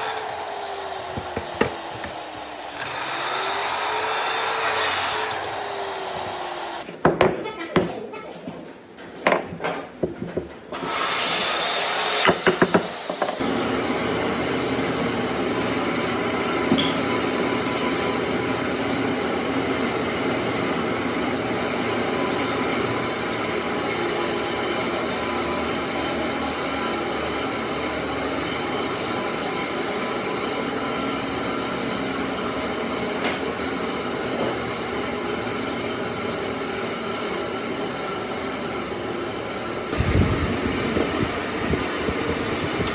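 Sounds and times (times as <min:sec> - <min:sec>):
power tool running: 0:00.0 - 0:07.2, 0:10.7 - 0:42.9
knocks on wood: 0:01.2 - 0:02.2, 0:06.9 - 0:08.0, 0:09.2 - 0:10.6, 0:12.2 - 0:13.4.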